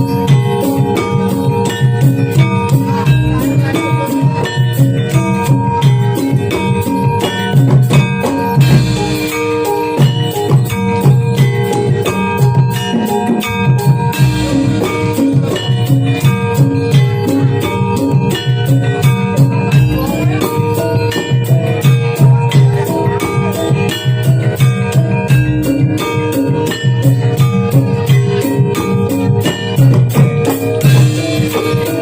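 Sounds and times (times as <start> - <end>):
hand drums: 0.0 - 32.0
struck metal percussion: 0.0 - 32.0.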